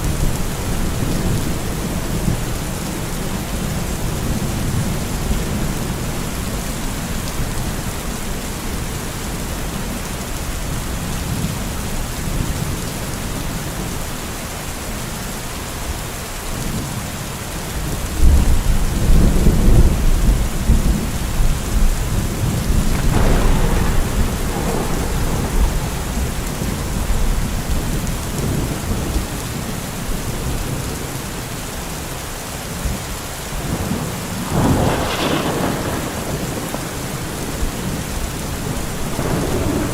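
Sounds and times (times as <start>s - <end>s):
steady rain: 0.0s - 39.9s
rolling thunder: 18.2s - 31.0s, 32.8s - 39.9s.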